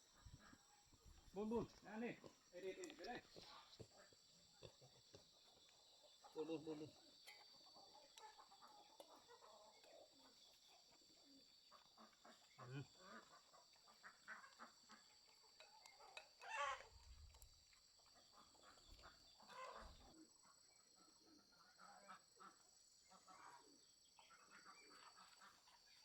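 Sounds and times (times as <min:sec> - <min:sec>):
chickens clucking: 0:07.6 - 0:17.4, 0:18.0 - 0:20.1
chicken squawk: 0:16.4 - 0:16.9, 0:19.4 - 0:20.1.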